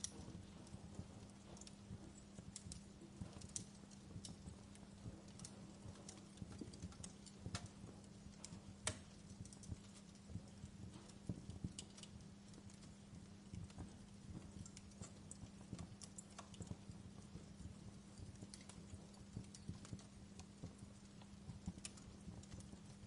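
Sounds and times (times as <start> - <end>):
steady low hum: 0.0 - 23.0
wood fire crackling: 0.0 - 23.0.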